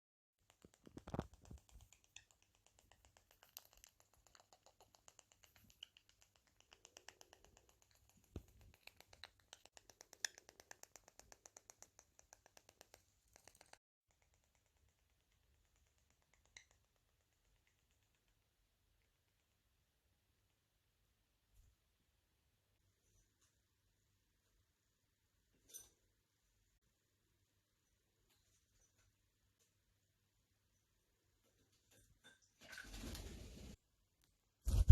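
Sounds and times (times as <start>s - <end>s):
parrot clicking: 0.4s - 18.6s.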